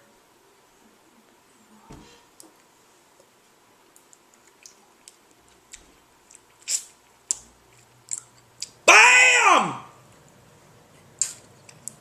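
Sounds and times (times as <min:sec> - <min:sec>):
small eating clicks: 0:03.9 - 0:08.8, 0:11.2 - 0:12.0.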